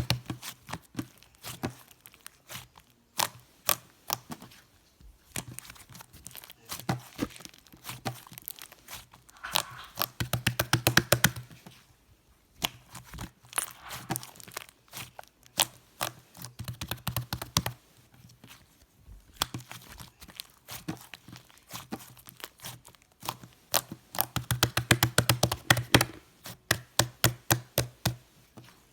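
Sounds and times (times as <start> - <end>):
slime clicking and crackling: 5.4 - 11.5, 19.3 - 28.2.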